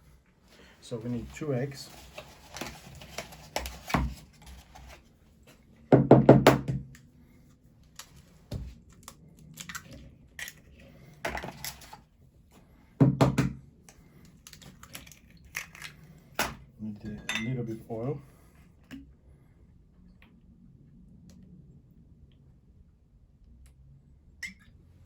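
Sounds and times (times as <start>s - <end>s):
eggs cracking against a bowl: 14.2s - 16.1s.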